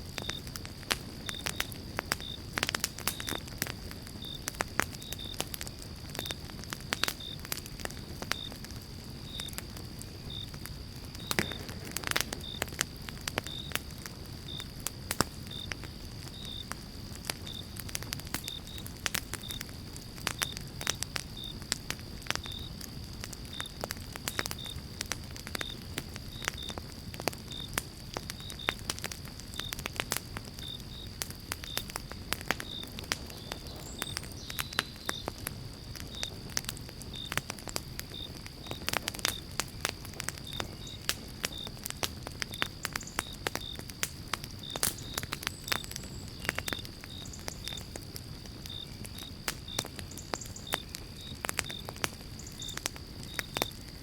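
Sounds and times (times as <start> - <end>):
campfire crackling and popping: 0.0 - 54.0
cricket chirping: 0.0 - 54.0.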